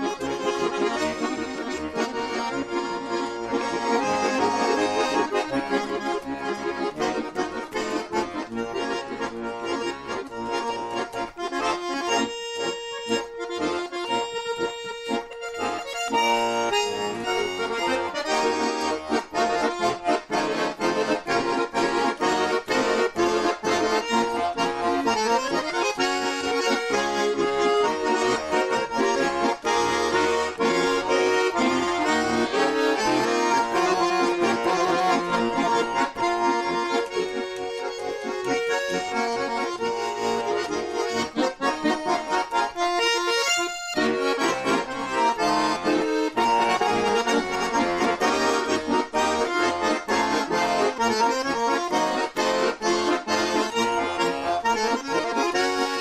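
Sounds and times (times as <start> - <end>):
accordion playing lively tune: 0.0 - 56.0.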